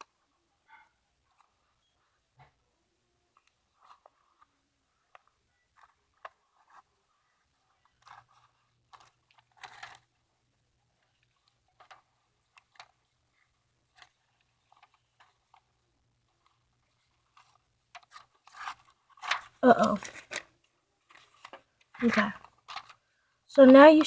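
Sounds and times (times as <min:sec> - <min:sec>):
paper crinkling and rustling: 0:16.3 - 0:23.0.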